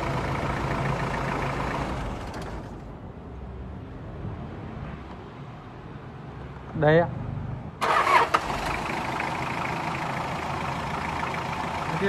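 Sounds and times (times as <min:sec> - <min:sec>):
car engine running: 0:07.8 - 0:12.0.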